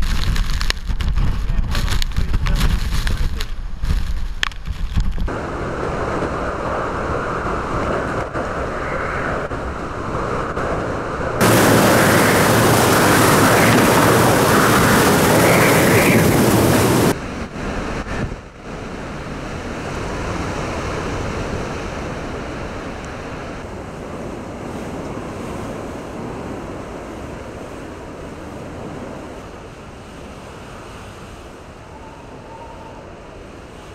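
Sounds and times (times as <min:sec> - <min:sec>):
wind and sea rushing: 0:00.0 - 0:33.9.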